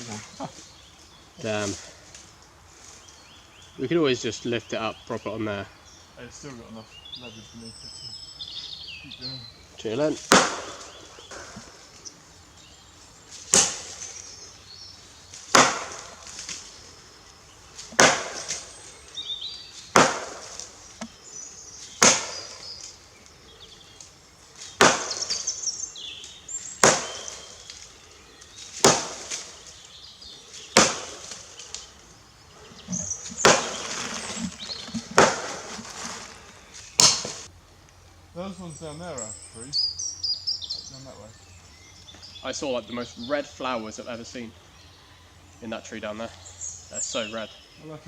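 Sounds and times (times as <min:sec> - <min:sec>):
axe chopping wood: 0:10.2 - 0:11.7, 0:13.5 - 0:14.0, 0:15.5 - 0:16.6, 0:17.8 - 0:18.7, 0:19.9 - 0:21.1, 0:22.0 - 0:22.6, 0:24.7 - 0:25.5, 0:26.8 - 0:27.5, 0:28.8 - 0:29.5, 0:30.7 - 0:31.4, 0:32.9 - 0:34.2, 0:34.9 - 0:35.8, 0:37.0 - 0:37.4.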